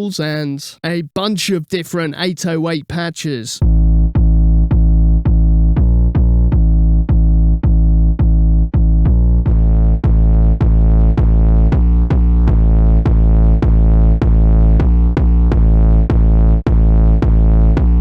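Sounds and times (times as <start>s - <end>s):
deep bass notes in syncopated pattern: 3.6s - 18.0s.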